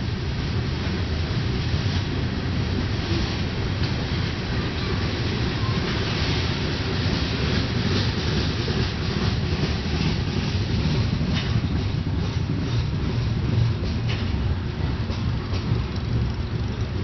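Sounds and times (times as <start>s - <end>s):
freight train wheels rumbling: 0.0s - 17.0s
wheels clicking over rail joints: 0.0s - 17.0s.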